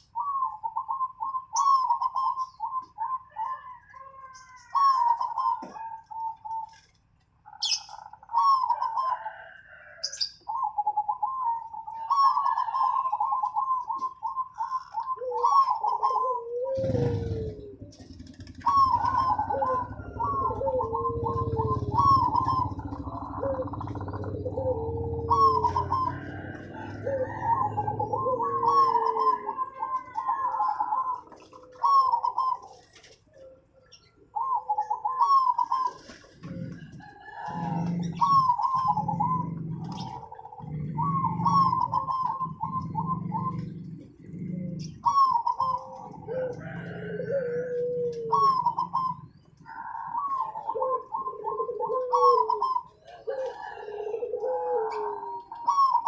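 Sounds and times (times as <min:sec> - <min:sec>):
doves cooing: 0:00.0 - 0:56.0.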